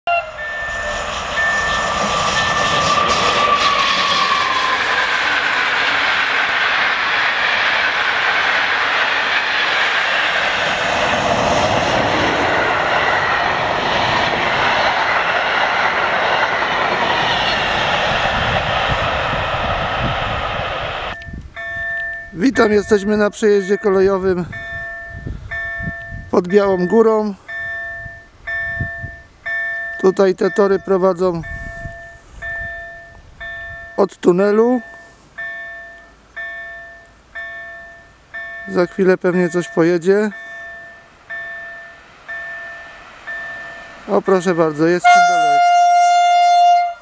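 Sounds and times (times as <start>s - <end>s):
level-crossing warning tone: 0.1s - 10.6s, 11.6s - 47.0s
train wheels rushing over rails: 0.2s - 23.1s, 39.6s - 45.6s.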